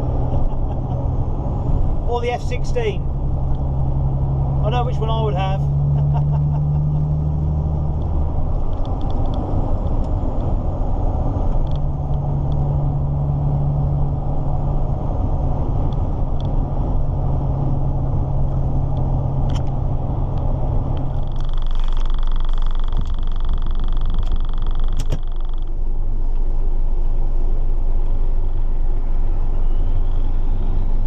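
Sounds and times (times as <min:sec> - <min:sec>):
truck diesel engine running: 0:00.0 - 0:08.8
road noise: 0:00.0 - 0:31.0.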